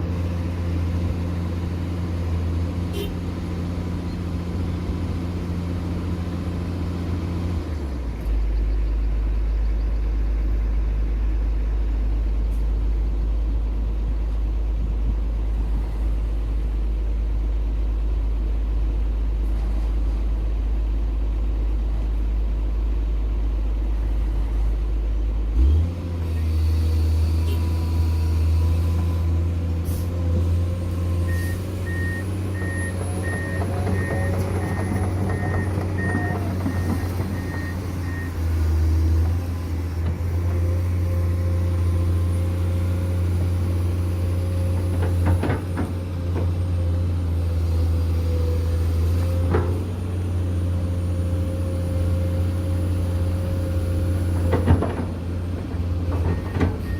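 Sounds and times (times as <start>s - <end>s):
diesel engine running: 0.0s - 56.9s
reversing alarm beeping: 31.3s - 38.4s.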